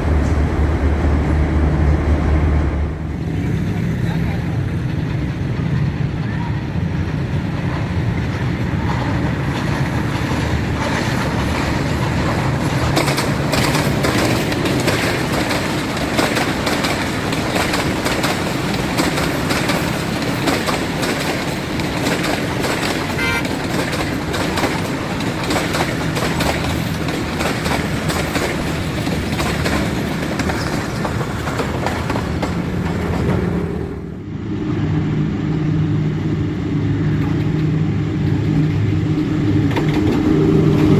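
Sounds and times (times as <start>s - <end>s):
locomotive engine running: 0.0s - 40.9s
train wheels clattering over rail joints: 7.0s - 33.6s, 37.2s - 40.9s.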